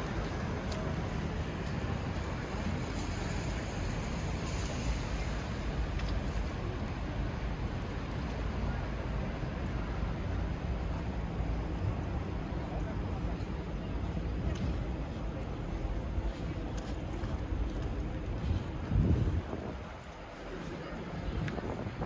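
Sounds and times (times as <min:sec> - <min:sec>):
rain on wet pavement: 0:00.0 - 0:09.2, 0:14.5 - 0:22.0.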